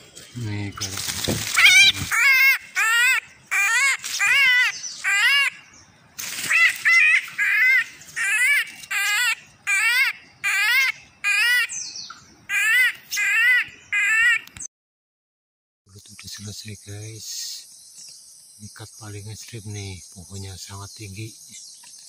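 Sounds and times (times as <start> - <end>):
bird squawking: 0.4 - 5.8, 6.4 - 14.6.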